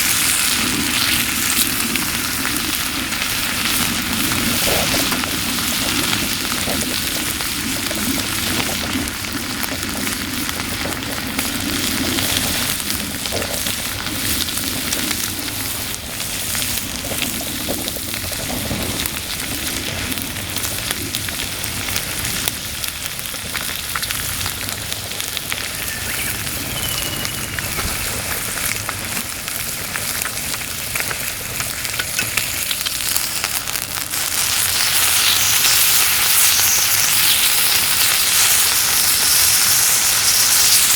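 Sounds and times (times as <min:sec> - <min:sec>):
meat sizzling on a grill: 0:00.0 - 0:40.9.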